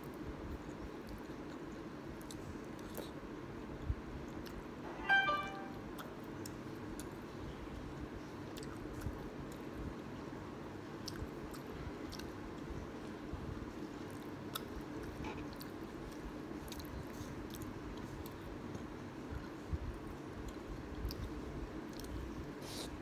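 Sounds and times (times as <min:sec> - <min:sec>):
person chewing: 0:11.0 - 0:12.3, 0:20.4 - 0:22.9.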